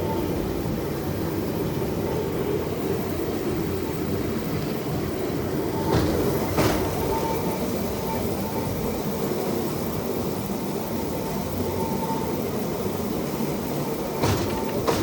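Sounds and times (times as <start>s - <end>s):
steel wheels rolling on railway track: 0.0s - 15.0s
wheel knock on rail joint: 5.8s - 7.5s, 14.2s - 15.0s.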